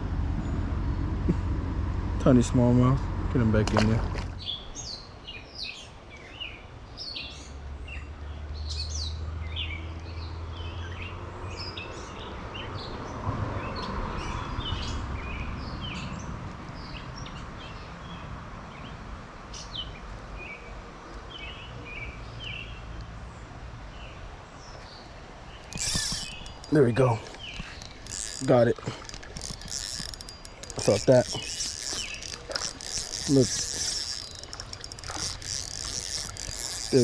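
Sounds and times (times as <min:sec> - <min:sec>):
songbirds chirping: 0:02.2 - 0:37.0.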